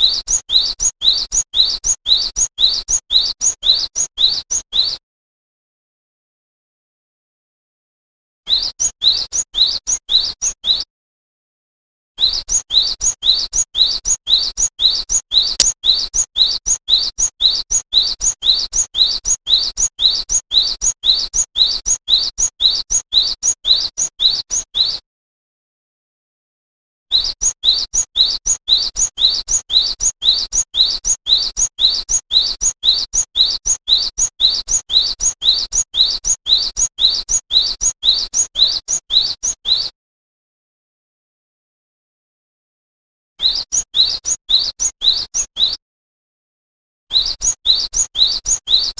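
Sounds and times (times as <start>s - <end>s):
songbird high chirps: 0.0s - 5.0s, 12.2s - 17.1s, 27.2s - 39.9s, 43.4s - 45.8s.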